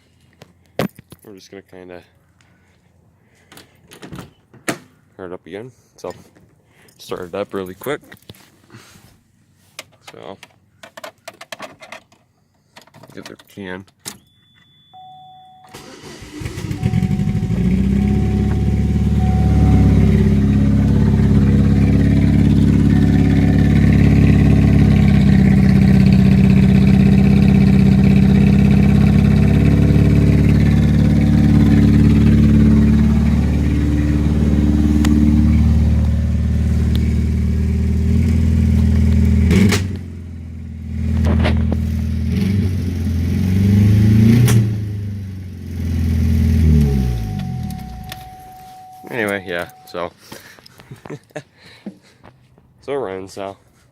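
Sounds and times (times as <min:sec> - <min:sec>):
car engine cranking and starting: 0:15.7 - 0:49.9.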